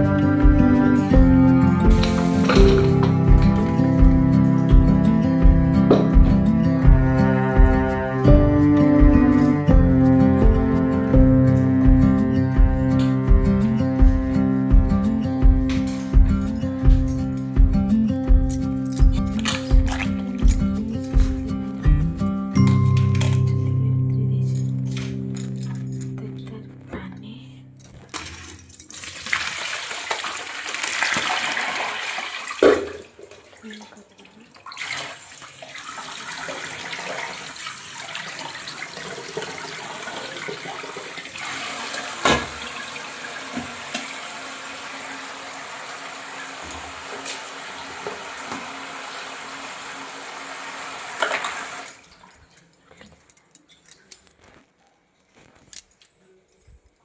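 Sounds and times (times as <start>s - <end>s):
tap water running into sink: 1.8s - 4.2s, 19.4s - 20.6s, 28.2s - 52.4s
sharp knocks: 5.9s - 6.5s.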